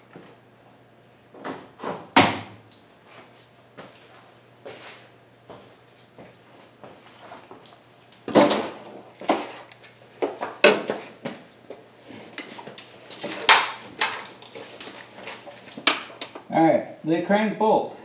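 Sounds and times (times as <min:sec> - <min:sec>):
sharp knocks of tools set down: 0:10.2 - 0:11.4, 0:13.1 - 0:16.5
metal tools clinking: 0:13.1 - 0:16.4.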